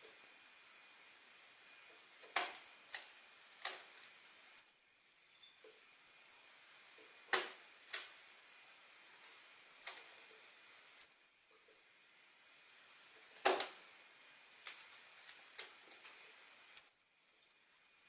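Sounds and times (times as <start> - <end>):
high falling bird whistle: 4.6 - 5.6, 11.0 - 11.9, 16.8 - 18.0.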